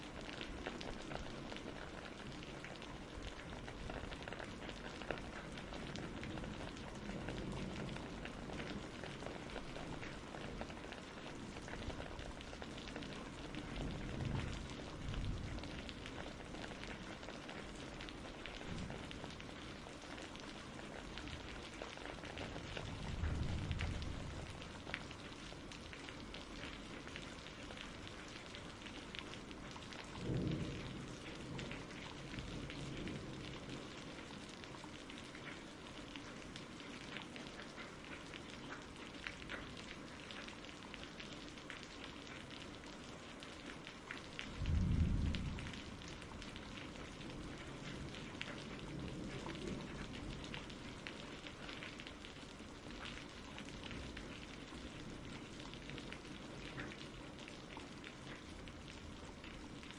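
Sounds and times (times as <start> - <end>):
steady rain: 0.0 - 59.9
thunder rumbling: 5.1 - 20.0, 20.9 - 26.3, 30.1 - 34.1, 44.5 - 51.0.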